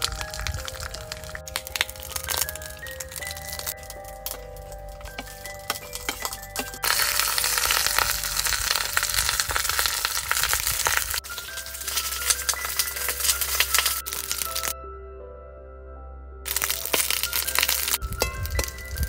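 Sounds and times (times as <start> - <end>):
background music: 0.0 - 19.0
food sizzling in hot oil: 6.8 - 14.7, 16.5 - 19.0.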